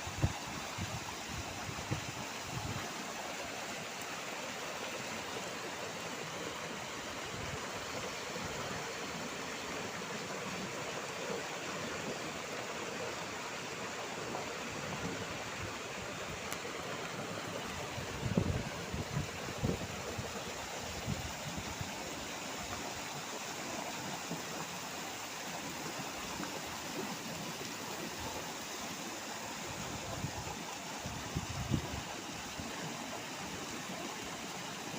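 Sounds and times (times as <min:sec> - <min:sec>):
wind buffeting microphone: 0:17.8 - 0:22.0, 0:29.8 - 0:32.2.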